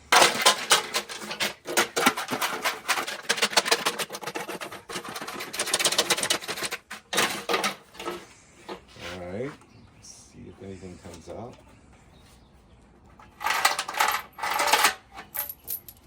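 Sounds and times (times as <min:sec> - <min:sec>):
contents rattling in shaken tank: 0:00.0 - 0:08.2, 0:13.3 - 0:16.0.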